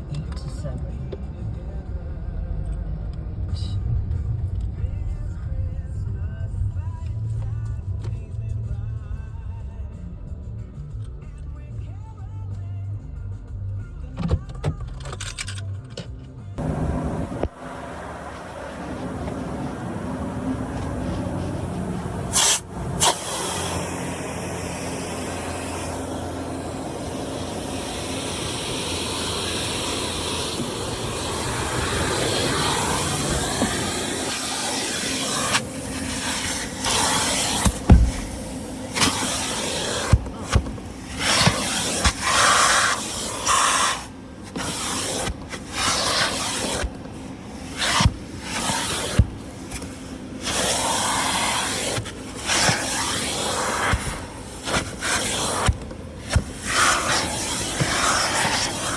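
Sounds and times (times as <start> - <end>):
water jets spraying on car: 16.6 - 58.9.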